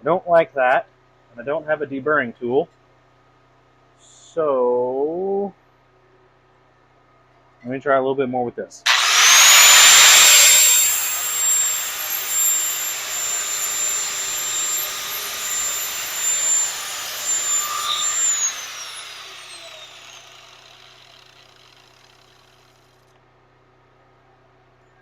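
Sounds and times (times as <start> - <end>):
grinder whining: 8.9 - 22.8
grinder winding down: 8.9 - 22.9.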